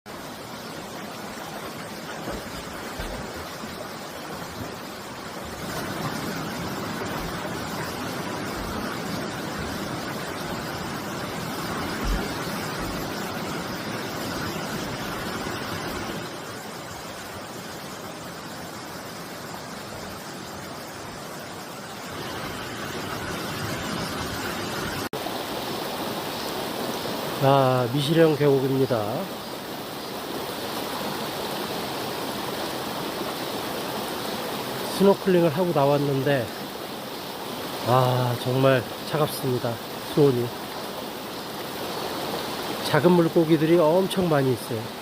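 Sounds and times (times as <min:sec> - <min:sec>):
stream rushing over rocks: 0:00.1 - 0:45.0
dull low thumps: 0:11.8 - 0:13.2.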